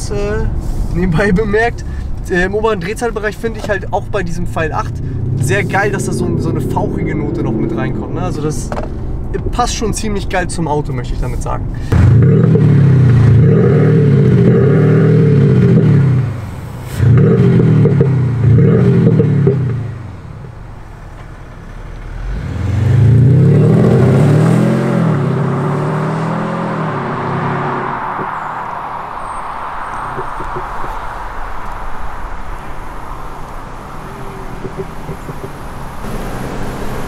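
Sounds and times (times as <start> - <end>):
diesel car engine revving: 0.0 - 9.6, 11.7 - 37.0
tyre and road noise: 0.0 - 37.0.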